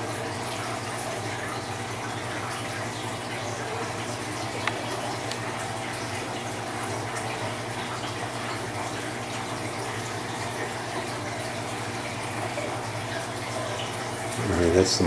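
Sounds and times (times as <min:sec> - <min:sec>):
pump electric hum: 0:00.0 - 0:15.0.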